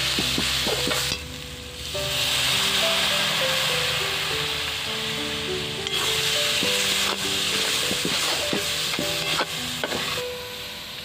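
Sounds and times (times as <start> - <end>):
background music: 0.0 - 11.0
masala sizzling in oil: 0.0 - 11.0
spoon scraping a metal pan: 5.8 - 10.2.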